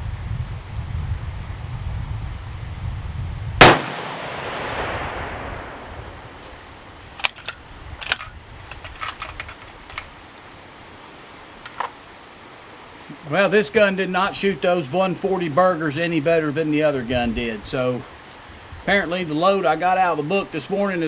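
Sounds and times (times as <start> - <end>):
wind on microphone: 0.0 - 3.9, 4.5 - 10.2, 17.0 - 19.0
rifle shot echoing: 3.6 - 6.0
metallic clicks and clinks: 7.2 - 10.1.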